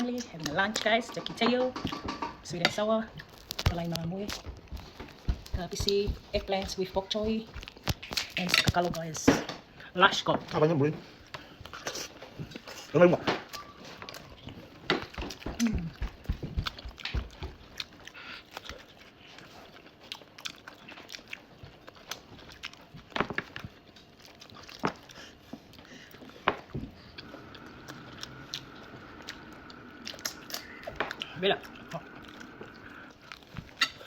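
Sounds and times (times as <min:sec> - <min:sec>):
person chewing food: 0:03.1 - 0:08.9, 0:13.5 - 0:34.0.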